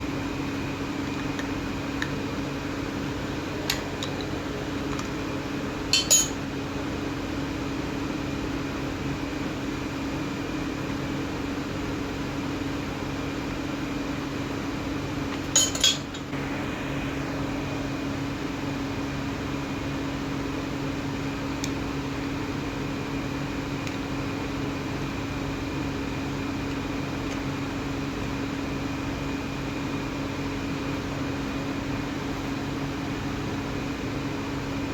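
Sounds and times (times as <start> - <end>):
metallic clinks: 5.9 - 6.4
electric motor hum: 16.3 - 20.0.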